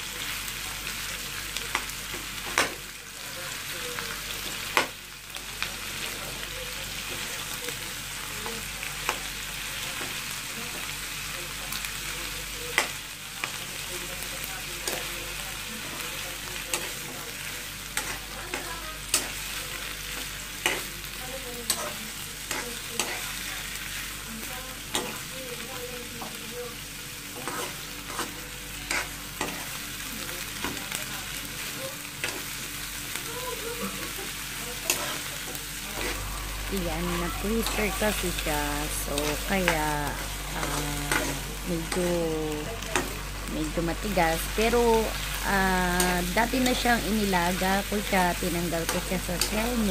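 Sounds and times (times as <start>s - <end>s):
food sizzling in oil in a wok: 0.0s - 49.9s
metal spoon scraping a pan: 27.4s - 29.8s.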